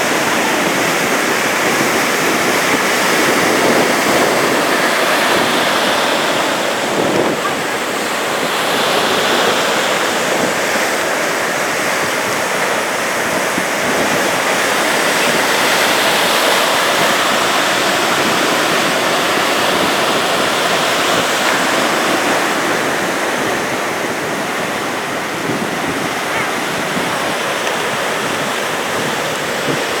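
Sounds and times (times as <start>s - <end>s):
ocean surf on beach: 0.0s - 30.0s.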